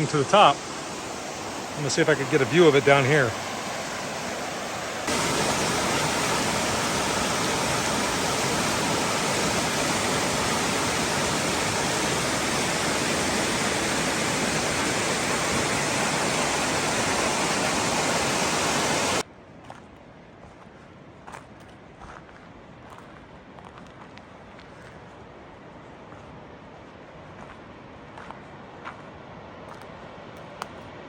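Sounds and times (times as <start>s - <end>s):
waterfall rushing: 0.0s - 19.2s.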